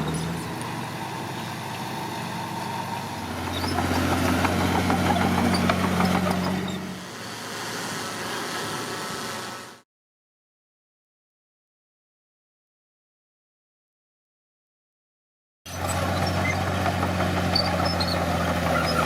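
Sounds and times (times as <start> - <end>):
heavy diesel engine running: 0.0 - 9.8, 15.7 - 19.0.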